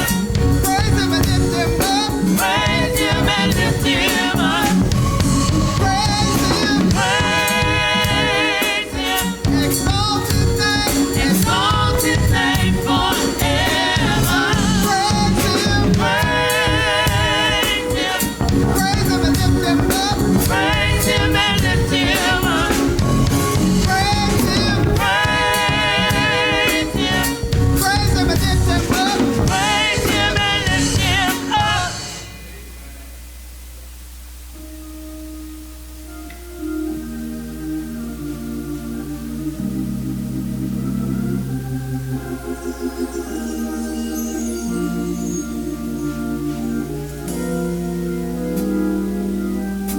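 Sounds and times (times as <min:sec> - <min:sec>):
band with drums: 0:00.0 - 0:32.5
singers with vibrato: 0:00.0 - 0:32.6.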